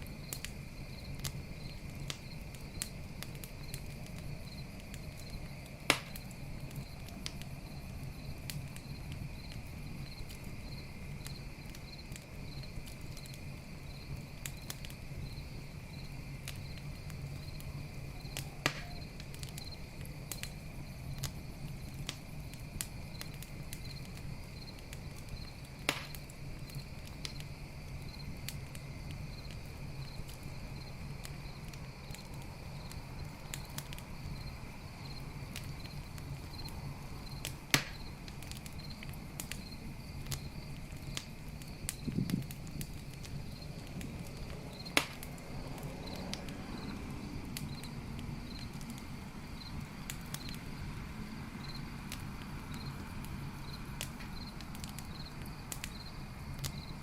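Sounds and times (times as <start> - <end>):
campfire crackling and popping: 0.0 - 57.0
crickets chirping: 0.0 - 57.0.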